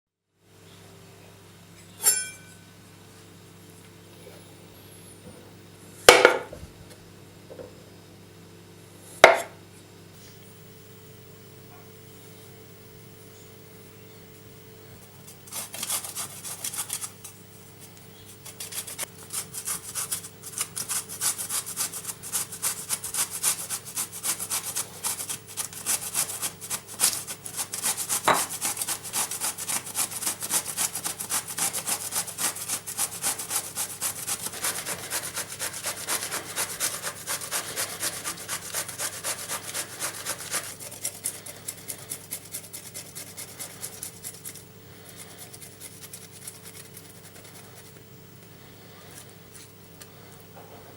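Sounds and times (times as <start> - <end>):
zucchini rasping on hand grater: 15.4 - 17.3, 18.3 - 48.0.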